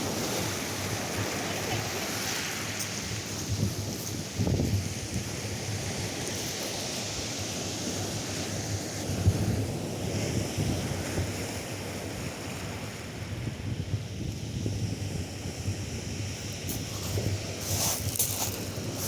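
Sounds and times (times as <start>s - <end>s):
wind buffeting microphone: 0.0s - 6.2s
surf washing onto beach: 0.0s - 13.5s, 14.5s - 19.0s.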